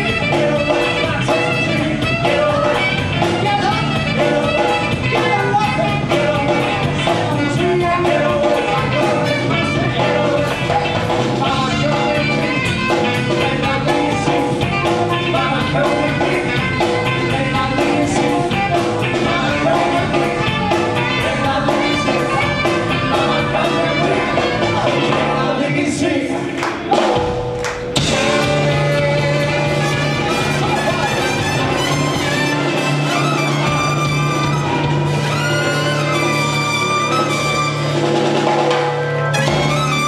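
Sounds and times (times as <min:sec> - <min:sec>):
person singing: 0:00.0 - 0:26.6, 0:28.0 - 0:37.3
live band playing: 0:00.0 - 0:40.0.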